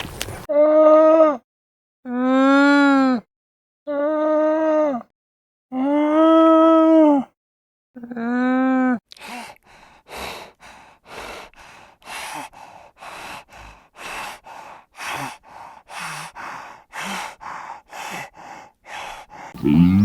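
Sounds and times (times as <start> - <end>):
animal breathing hard: 9.8 - 19.6.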